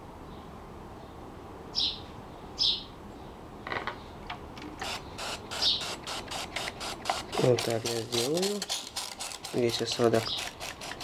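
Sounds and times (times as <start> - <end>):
bird chirping: 0.3 - 4.2, 4.8 - 7.4, 9.7 - 10.7
handling clicks and ticks: 4.3 - 11.0.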